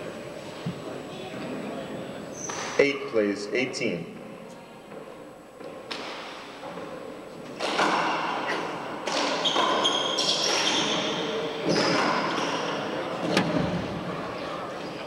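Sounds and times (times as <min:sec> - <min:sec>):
sneakers squeaking on floor: 0:07.7 - 0:12.9.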